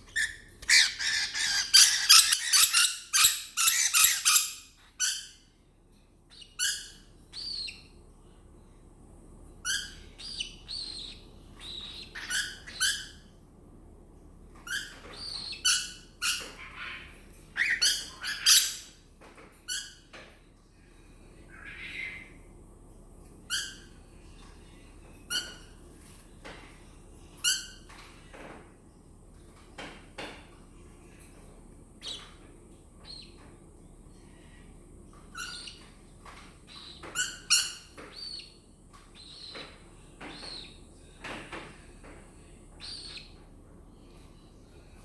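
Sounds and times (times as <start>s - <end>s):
cockatiel chirping: 0.1s - 5.3s, 6.3s - 7.8s, 9.7s - 13.2s, 14.7s - 17.0s, 17.6s - 18.9s, 35.4s - 35.8s, 36.7s - 38.6s, 40.3s - 40.8s, 42.8s - 43.3s.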